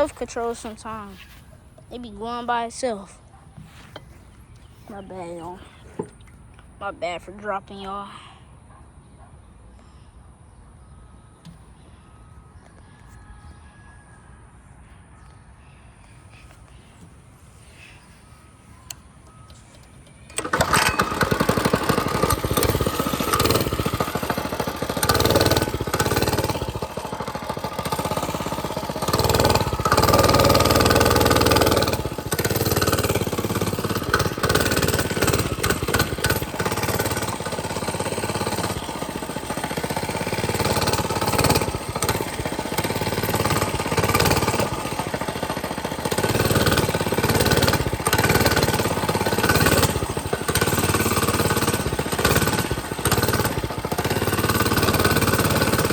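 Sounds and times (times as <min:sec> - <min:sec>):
mini bike engine running: 0:19.5 - 0:55.9.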